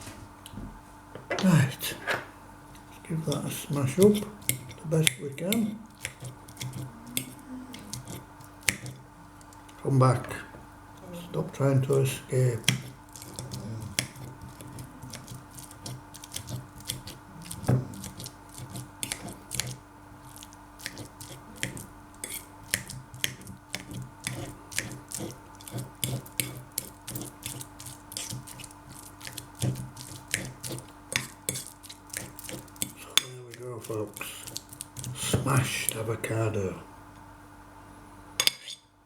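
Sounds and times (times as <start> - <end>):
faint steady hum: 0.0 - 39.0
soft squishing: 2.6 - 36.4
utensil clicking against dish: 4.0 - 9.7, 12.6 - 19.8.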